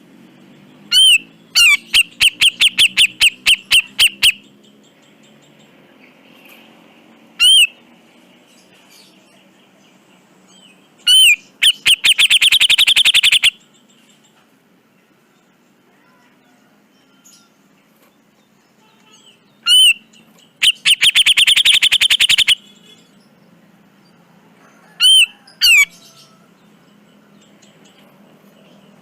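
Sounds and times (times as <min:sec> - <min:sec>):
bird calling and chattering: 0:00.9 - 0:05.7, 0:07.4 - 0:07.8, 0:10.6 - 0:14.4, 0:19.0 - 0:23.2, 0:25.0 - 0:26.1.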